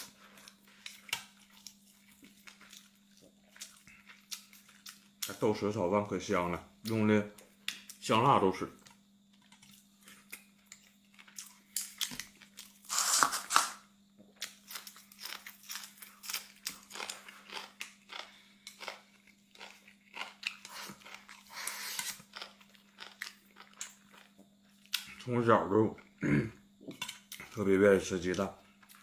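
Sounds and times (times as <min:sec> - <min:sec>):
chewing food: 0:00.0 - 0:05.4, 0:14.2 - 0:26.2.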